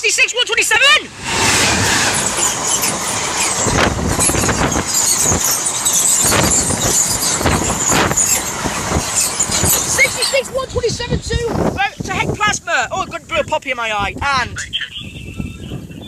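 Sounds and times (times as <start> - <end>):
train wheels rumbling on rail: 0.7 - 13.2
high-pitched wheel squeal: 1.1 - 10.7.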